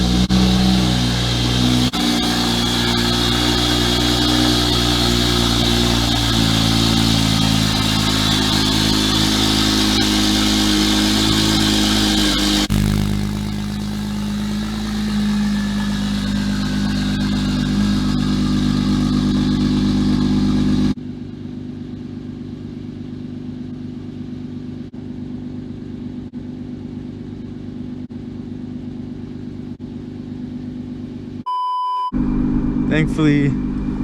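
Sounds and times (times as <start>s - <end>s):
car engine running: 0.0s - 31.4s, 32.2s - 34.0s
short beep: 31.5s - 33.5s.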